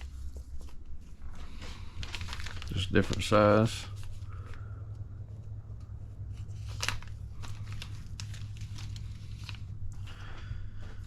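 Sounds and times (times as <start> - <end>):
plastic bags crinkling: 0.0 - 4.8, 6.2 - 10.2
steady low hum: 0.0 - 11.0.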